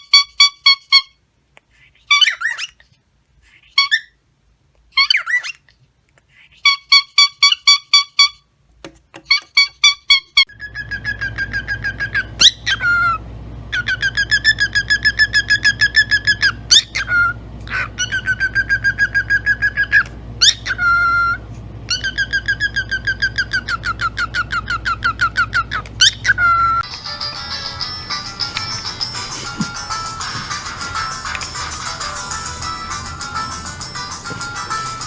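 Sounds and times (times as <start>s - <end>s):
parrot whistling: 0.0s - 1.2s, 2.1s - 2.8s, 3.7s - 4.2s, 5.0s - 5.6s, 6.6s - 8.4s, 9.3s - 35.0s
low hum: 10.5s - 35.0s.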